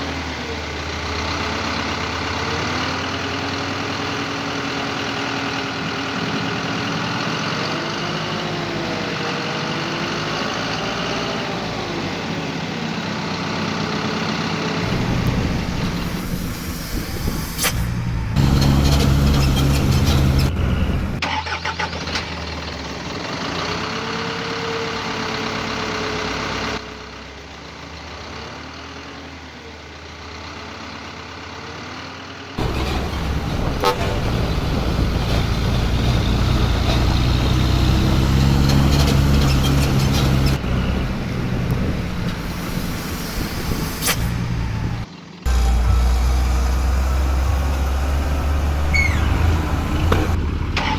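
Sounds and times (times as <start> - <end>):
diesel truck engines idling and revving: 0.0 - 50.9.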